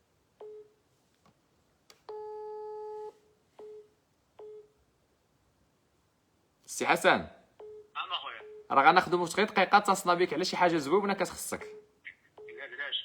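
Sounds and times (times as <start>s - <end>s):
telephone line beeps: 11.6s - 12.8s.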